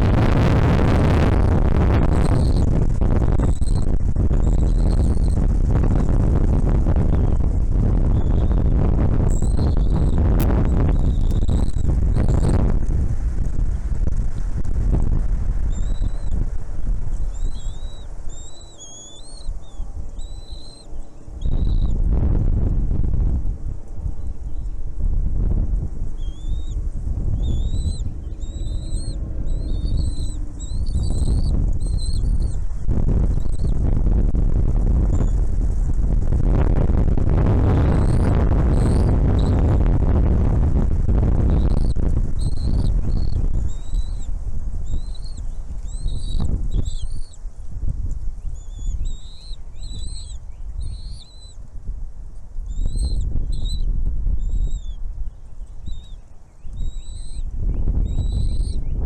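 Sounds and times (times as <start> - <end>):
low rumble: 0.0 - 59.0
small bird calling: 1.3 - 2.7, 3.3 - 5.4, 8.1 - 12.6, 15.6 - 16.4, 17.0 - 22.0, 26.1 - 33.9, 37.8 - 39.7, 41.5 - 47.5, 48.4 - 51.6, 52.7 - 59.0.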